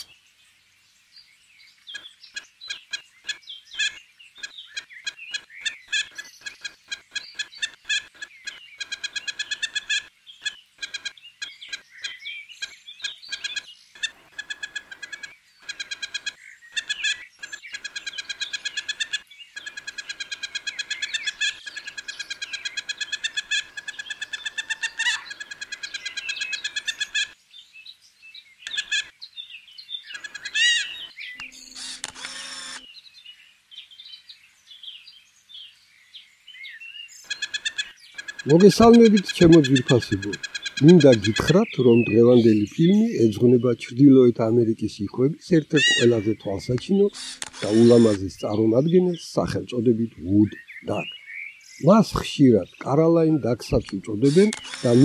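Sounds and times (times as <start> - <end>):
birds chirping: 0.0 - 55.0
rapid squeaky bird notes: 2.3 - 27.4, 28.7 - 29.1, 30.1 - 32.8, 37.2 - 50.0, 53.4 - 55.0.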